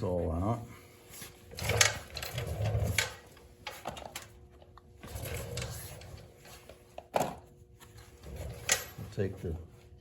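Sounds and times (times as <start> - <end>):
tools clicking and rattling: 1.6 - 4.3.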